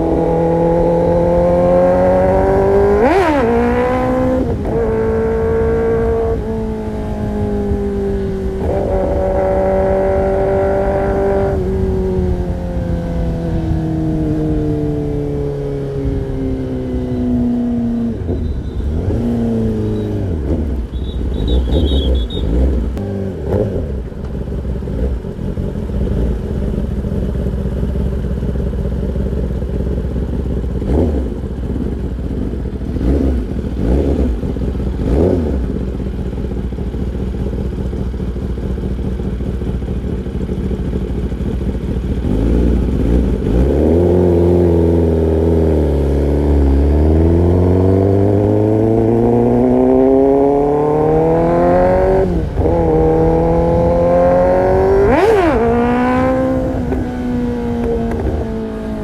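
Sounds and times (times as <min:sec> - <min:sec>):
motorcycle engine revving: 0:00.0 - 0:59.0
motorcycle engine idling: 0:23.9 - 0:43.6.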